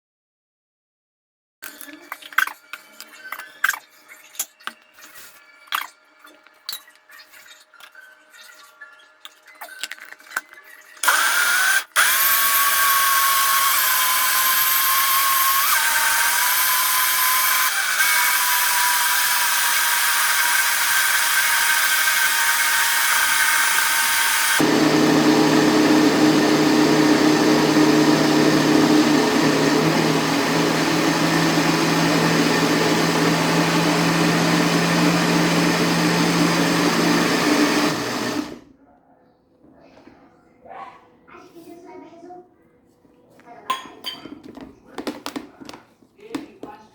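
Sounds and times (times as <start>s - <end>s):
blender motor running: 11.0s - 38.7s.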